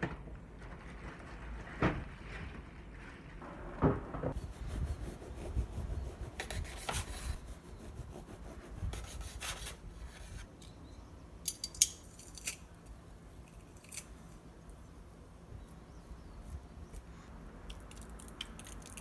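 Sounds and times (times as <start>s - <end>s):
utensils scraping food: 4.4s - 10.5s.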